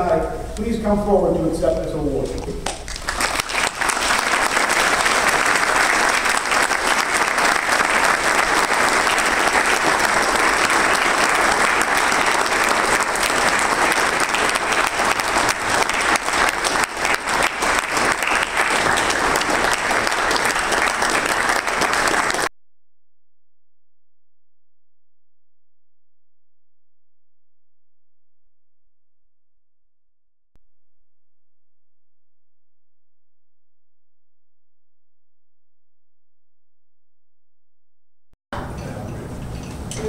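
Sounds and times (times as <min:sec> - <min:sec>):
audience applauding: 0:02.6 - 0:22.5.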